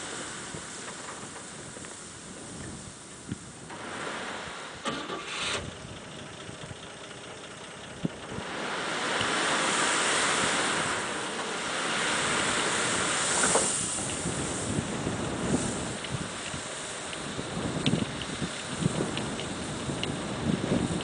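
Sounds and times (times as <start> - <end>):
gravel pouring off dump bed: 8.5 - 21.0.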